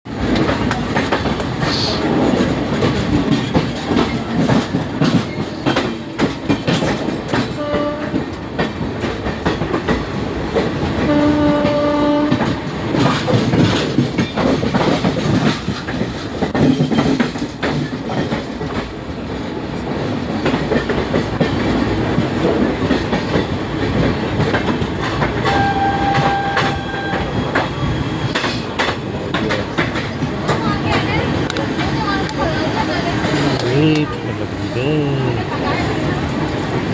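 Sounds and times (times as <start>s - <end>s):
train wheels clacking on rails: 0.1s - 36.9s
train horn notes: 7.5s - 8.3s, 11.0s - 12.6s, 25.4s - 27.4s.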